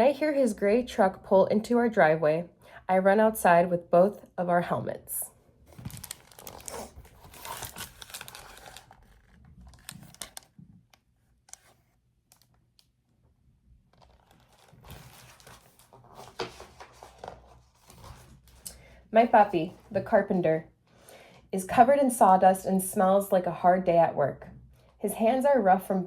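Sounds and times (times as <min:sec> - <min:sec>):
book pages rustling: 0:05.7 - 0:12.7, 0:13.9 - 0:20.2.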